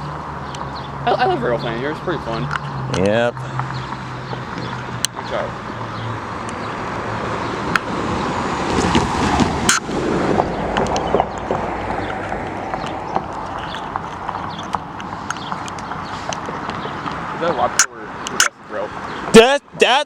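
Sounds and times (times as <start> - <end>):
vehicle passing close by: 0.0 - 19.4
sharp clicks: 10.7 - 17.2, 17.8 - 18.6.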